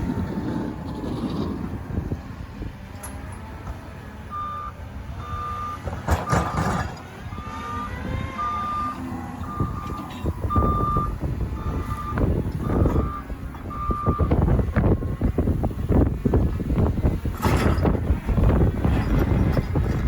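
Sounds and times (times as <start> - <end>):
diesel engine running: 0.0 - 20.0
reversing alarm beeping: 4.2 - 15.3.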